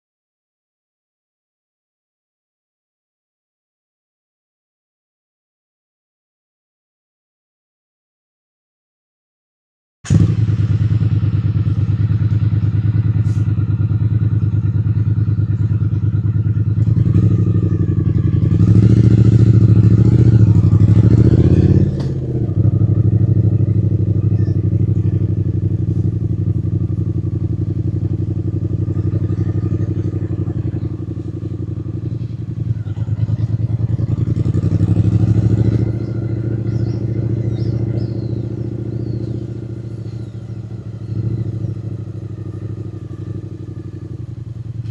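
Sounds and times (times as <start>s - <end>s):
motorcycle engine revving: 10.1s - 44.9s.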